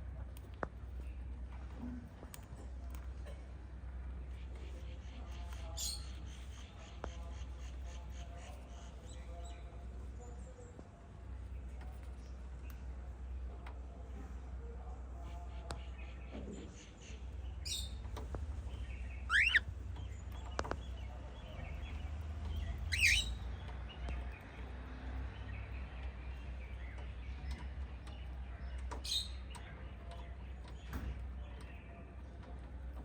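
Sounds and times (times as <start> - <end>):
cockatiels and budgies chirping: 4.3 - 9.8, 15.5 - 24.7, 25.3 - 32.0.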